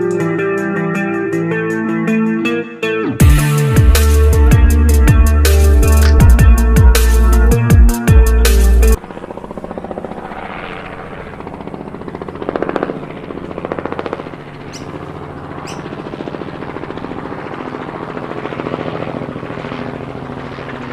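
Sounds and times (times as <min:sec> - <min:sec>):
toy helicopter motor buzzing: 0:09.0 - 0:16.2.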